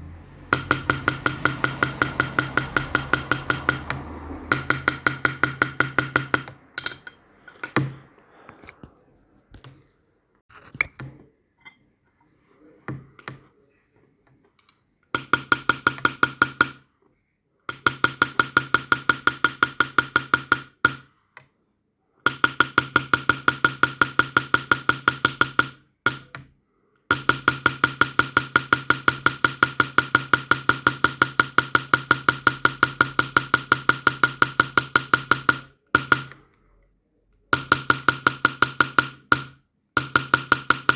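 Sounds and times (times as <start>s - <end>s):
hammer tapping metal punch: 0.5s - 8.0s, 14.6s - 16.8s, 37.5s - 40.9s.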